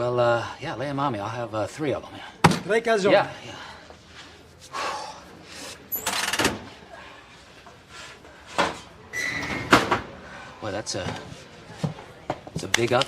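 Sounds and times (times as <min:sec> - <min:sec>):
short squeak: 0:09.1 - 0:09.7.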